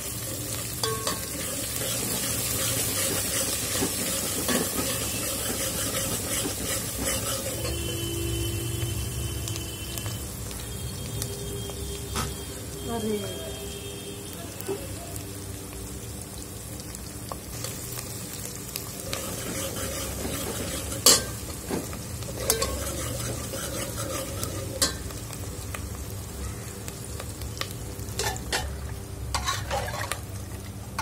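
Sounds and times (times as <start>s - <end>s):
food sizzling in hot oil: 0.0s - 31.0s
steel ladle scraping pot: 0.8s - 7.9s, 19.1s - 21.4s, 22.4s - 25.0s, 29.3s - 30.2s.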